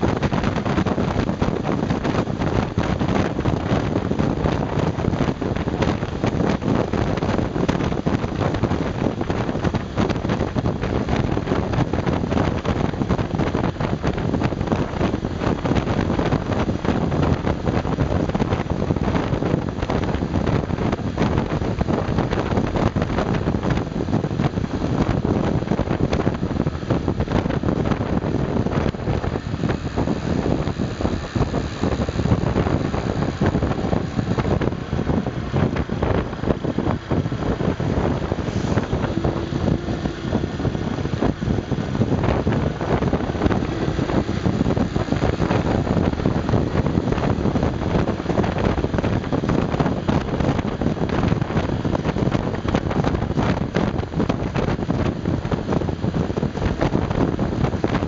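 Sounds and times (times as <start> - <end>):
motorcycle engine under load: 0.0 - 57.9
wind buffeting microphone: 0.0 - 58.0.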